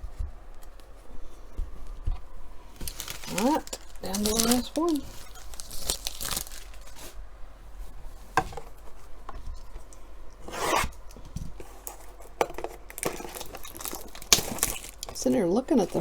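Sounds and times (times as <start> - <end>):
rasping cardboard scrape: 10.4 - 11.0.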